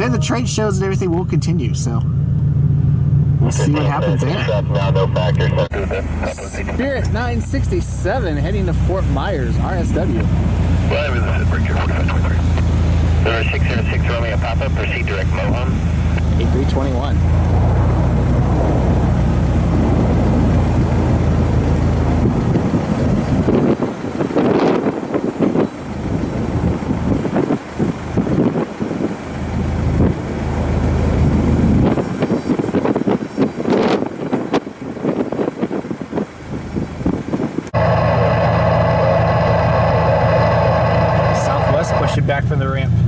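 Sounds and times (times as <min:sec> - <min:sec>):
steady low hum: 0:00.0 - 0:24.5
jet airliner engine noise: 0:03.1 - 0:37.9.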